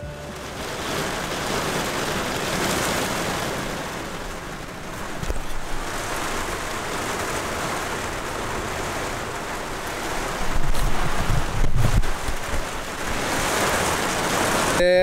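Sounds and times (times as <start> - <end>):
heavy rain on a vehicle roof: 0.0 - 15.0
wind buffeting on microphone: 10.0 - 14.8.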